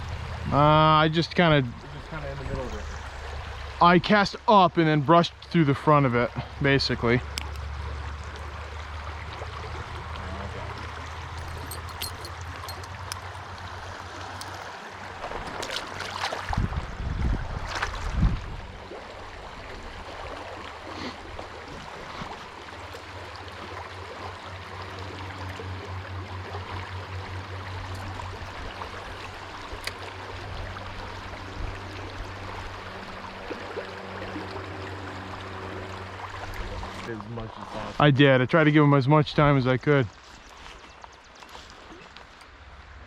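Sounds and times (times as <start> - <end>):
stream water over rapids: 0.0 - 38.1
knocks and rustles: 11.4 - 13.3.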